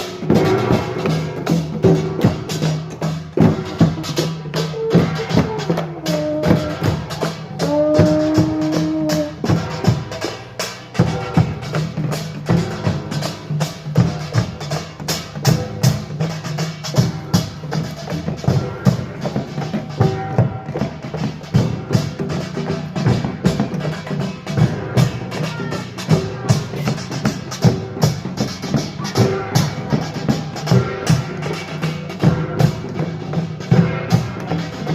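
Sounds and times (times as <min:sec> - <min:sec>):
gongs and drums playing fast rhythm: 0:00.0 - 0:34.9.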